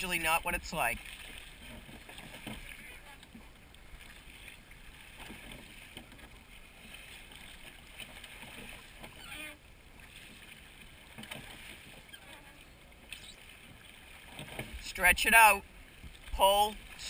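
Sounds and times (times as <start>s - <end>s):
water wash: 0.0s - 17.0s
wind: 0.0s - 17.0s
oars knocking: 1.0s - 9.4s, 10.0s - 14.9s.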